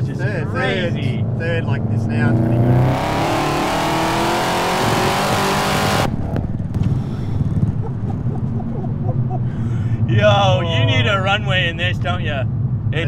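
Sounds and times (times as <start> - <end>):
car engine at full throttle: 0.0 - 13.0
sharp exhaust pops: 5.0 - 8.2.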